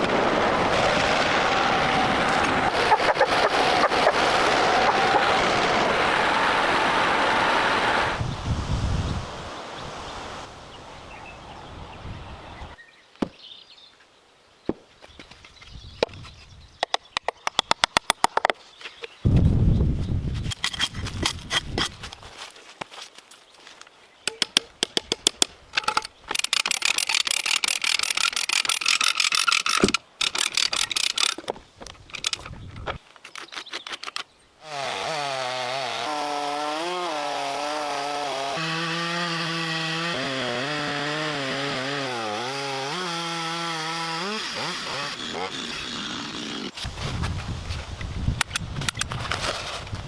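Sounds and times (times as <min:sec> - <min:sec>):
chainsaw engine running: 0:00.0 - 0:08.2, 0:34.6 - 0:46.8
wood being sawn: 0:00.0 - 0:08.2, 0:34.6 - 0:47.0.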